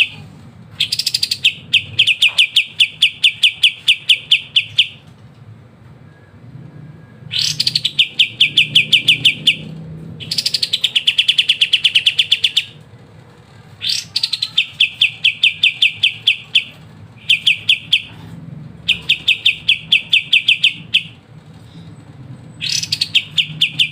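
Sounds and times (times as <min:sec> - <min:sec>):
bird singing rattling trill: 0:00.8 - 0:05.0, 0:07.3 - 0:12.8, 0:13.8 - 0:18.2, 0:18.8 - 0:21.2, 0:22.5 - 0:23.9.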